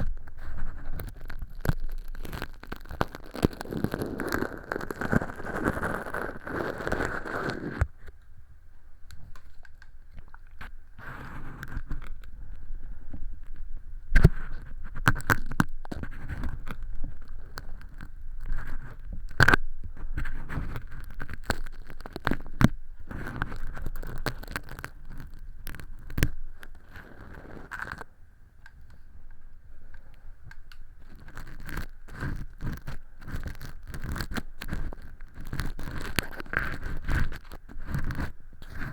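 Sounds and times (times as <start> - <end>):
earpick scraping fake earwax: 0.0 - 8.0, 14.2 - 28.0, 31.0 - 38.9.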